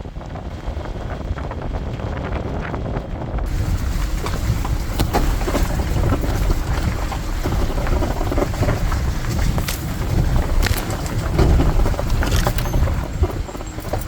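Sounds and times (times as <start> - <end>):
van low rumble: 0.0 - 14.0
knocks and rattles: 3.4 - 14.0.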